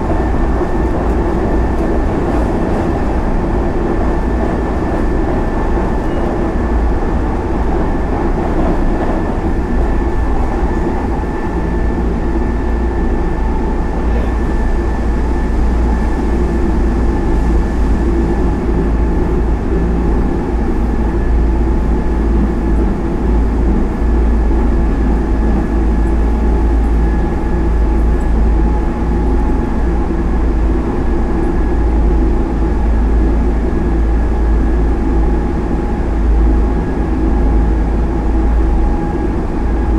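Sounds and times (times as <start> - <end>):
train low rumble: 0.0 - 39.9.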